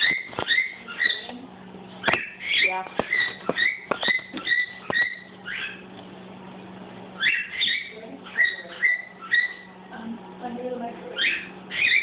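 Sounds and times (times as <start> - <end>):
cockatiel whistling: 0.0 - 1.3, 2.0 - 5.8, 7.2 - 9.7, 11.2 - 12.0.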